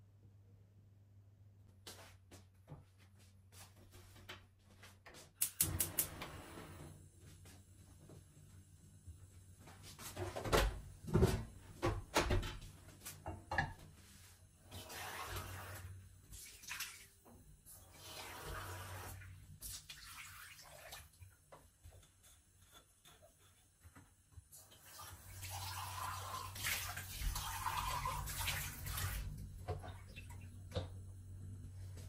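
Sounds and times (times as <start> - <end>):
water running and splashing: 14.7 - 17.2, 17.8 - 21.4, 24.6 - 30.9.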